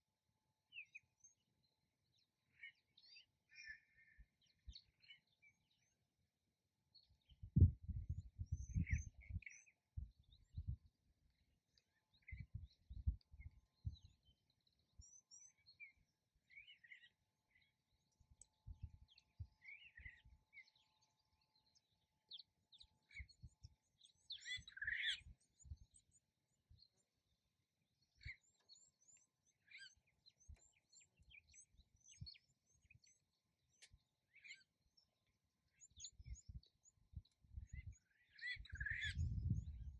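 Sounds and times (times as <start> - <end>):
bird chirps and calls: 7.5 - 10.7, 18.4 - 26.2, 28.2 - 39.9.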